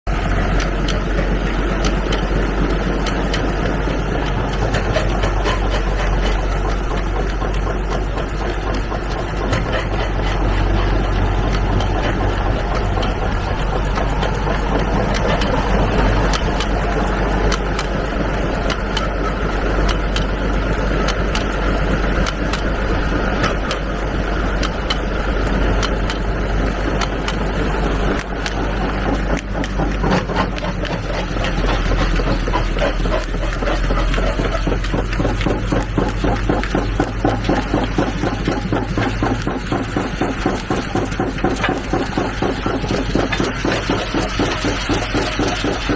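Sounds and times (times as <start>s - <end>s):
engine and machinery drone: 0.0s - 45.9s
rocks being crushed: 25.8s - 45.9s.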